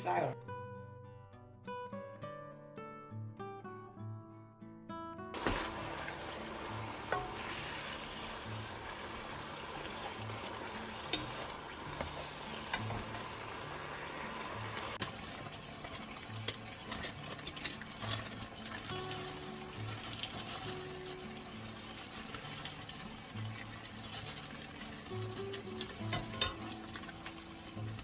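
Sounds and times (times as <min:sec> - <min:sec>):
utensil scraping against pan: 0:05.4 - 0:15.0, 0:15.9 - 0:19.0
food sizzling in a pan: 0:05.4 - 0:28.0.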